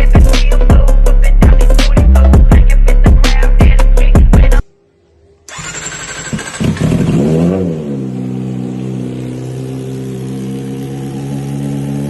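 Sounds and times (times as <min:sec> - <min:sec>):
motorcycle engine revving and idling: 0:05.5 - 0:12.0.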